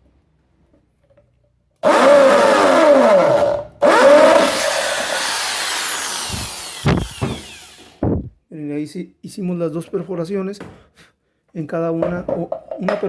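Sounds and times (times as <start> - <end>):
electric drill drilling metal: 1.8 - 8.2.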